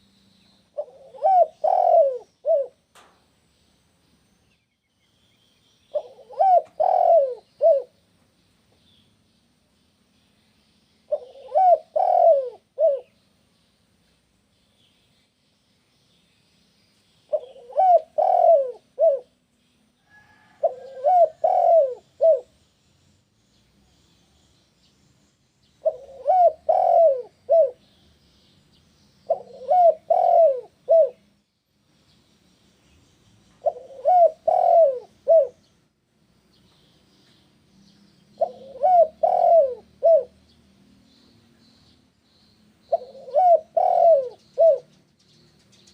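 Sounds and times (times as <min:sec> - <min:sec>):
dove cooing: 0:00.7 - 0:03.1, 0:05.9 - 0:08.0, 0:11.1 - 0:13.1, 0:17.3 - 0:19.4, 0:20.1 - 0:22.5, 0:25.8 - 0:27.8, 0:29.3 - 0:31.3, 0:33.6 - 0:35.7, 0:38.4 - 0:40.4, 0:42.9 - 0:45.0.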